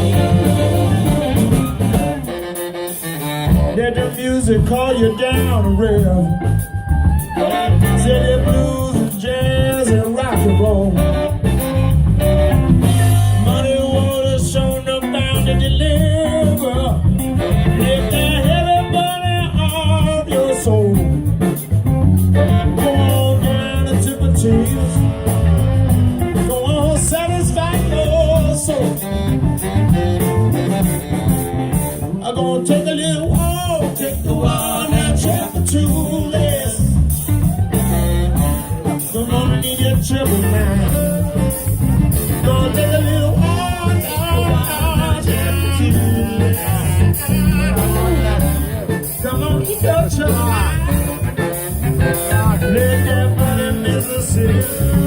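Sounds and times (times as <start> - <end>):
guitar: 0.0 - 55.0
live blues band playing: 0.0 - 55.0.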